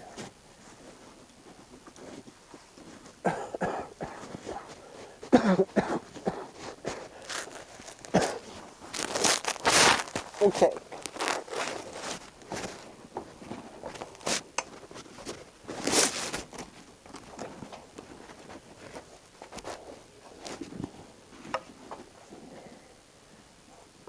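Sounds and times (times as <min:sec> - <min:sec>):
rustling: 0:00.0 - 0:03.3, 0:04.0 - 0:22.8.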